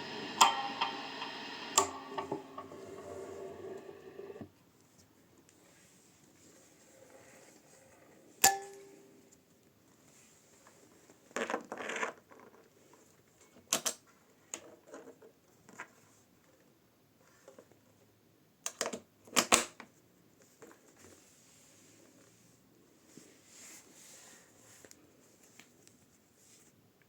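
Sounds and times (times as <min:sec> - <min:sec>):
electric guitar clicks and knocks: 0:00.0 - 0:04.4
guitar ringing tone: 0:00.0 - 0:04.4
faint steady hiss: 0:00.0 - 0:11.4.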